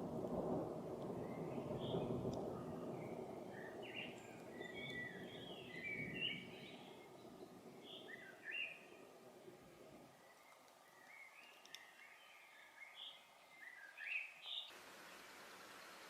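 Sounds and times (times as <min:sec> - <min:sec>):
songbirds chirping and singing: 0:02.8 - 0:09.3, 0:09.9 - 0:14.7.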